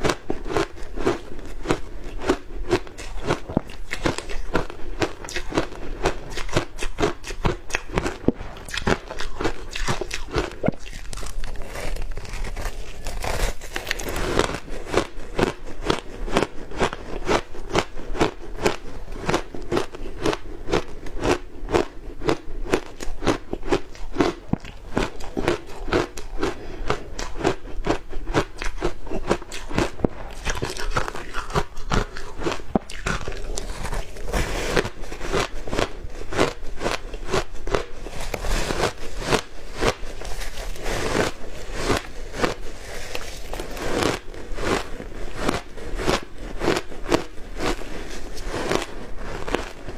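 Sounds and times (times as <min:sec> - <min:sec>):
ice being crunched: 0:08.6 - 0:15.0, 0:29.8 - 0:49.9.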